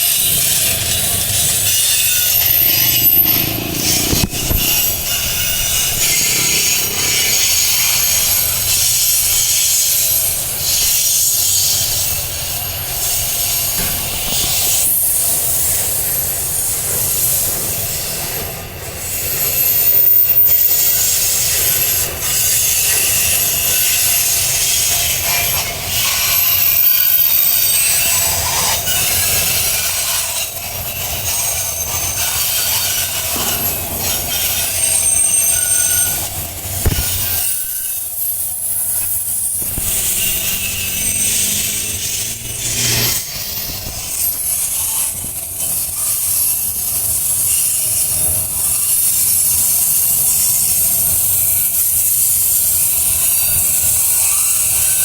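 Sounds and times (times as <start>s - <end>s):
train wheels squealing on rails: 0.0s - 55.0s
train low rumble: 30.6s - 49.8s.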